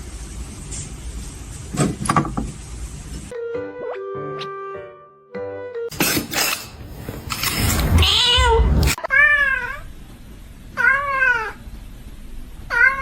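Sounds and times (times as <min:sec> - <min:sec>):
cat meowing: 0:07.8 - 0:09.8, 0:12.7 - 0:13.0.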